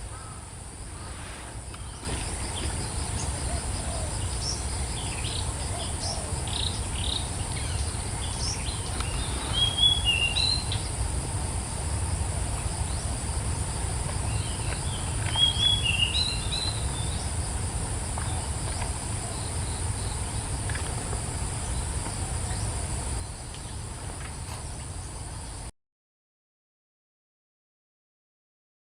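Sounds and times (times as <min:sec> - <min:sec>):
birds chirping: 0:01.7 - 0:11.1, 0:12.6 - 0:23.9.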